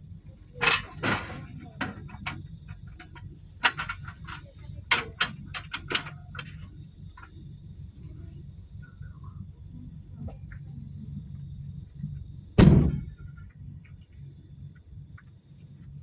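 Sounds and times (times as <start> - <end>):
steady low hum: 0.0 - 16.0
sharp knocks and clatters: 0.6 - 6.7.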